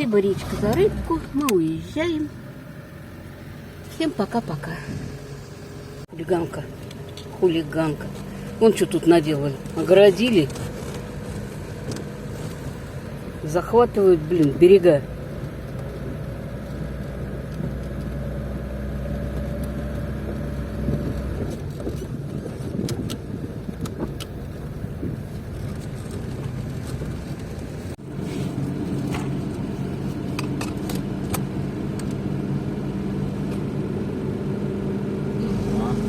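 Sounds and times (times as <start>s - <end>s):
car engine running: 0.0s - 36.0s
road noise: 0.0s - 36.0s.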